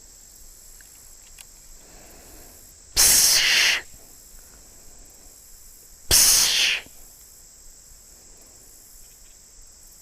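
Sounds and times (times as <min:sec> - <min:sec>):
breathy blowing snort: 0:02.0 - 0:03.8.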